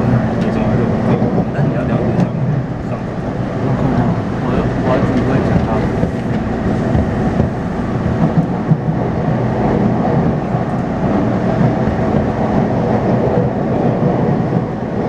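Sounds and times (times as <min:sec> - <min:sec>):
train wheels rumbling on track: 0:00.0 - 0:15.0
faint drive hum: 0:00.2 - 0:08.8.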